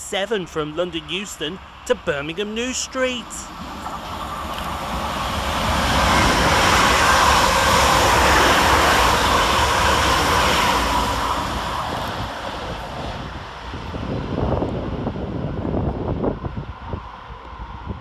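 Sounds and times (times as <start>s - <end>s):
electric train passing: 0.0s - 18.0s.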